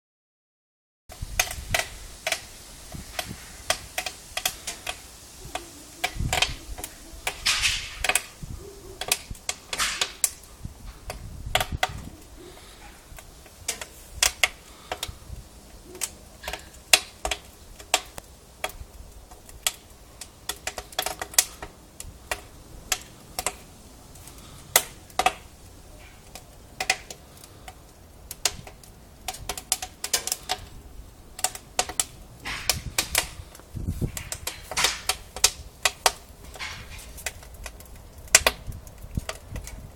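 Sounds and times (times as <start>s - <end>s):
firewood crackling and popping: 1.1s - 39.9s
low steady hiss: 1.1s - 39.9s.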